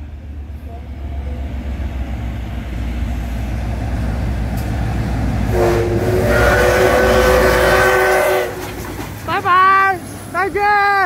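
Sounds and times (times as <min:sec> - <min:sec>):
locomotive engine rumble: 0:00.0 - 0:11.0
loud train horn: 0:05.5 - 0:08.8.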